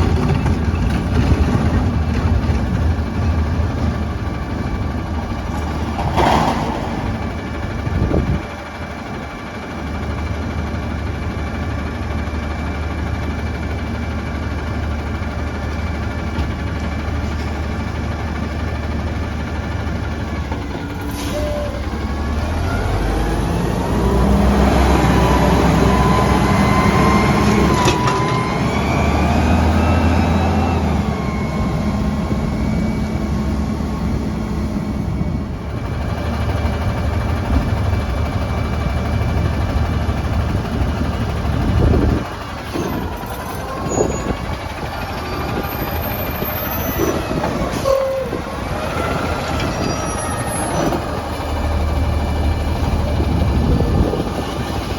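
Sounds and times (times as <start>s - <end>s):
garbage truck diesel engine revving: 16.7s - 54.9s.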